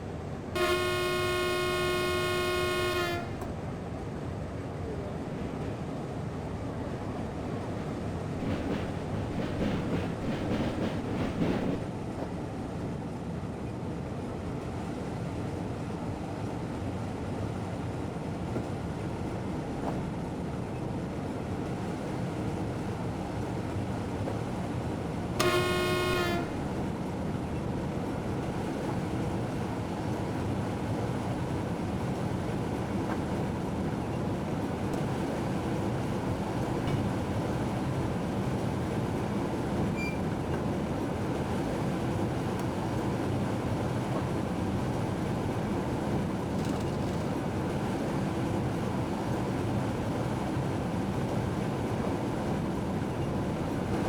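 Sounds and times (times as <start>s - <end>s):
train running rumble: 0.0s - 54.0s
train horn blast: 0.6s - 3.5s, 25.4s - 26.8s.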